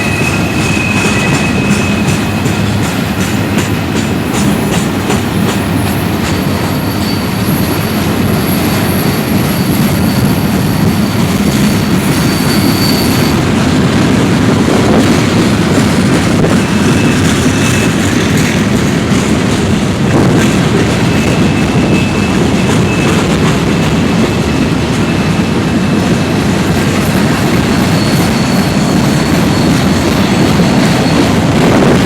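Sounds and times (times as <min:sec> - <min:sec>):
high wheel squeal: 0:00.0 - 0:02.8, 0:04.4 - 0:13.6, 0:15.7 - 0:18.6, 0:21.0 - 0:26.1, 0:26.8 - 0:32.0.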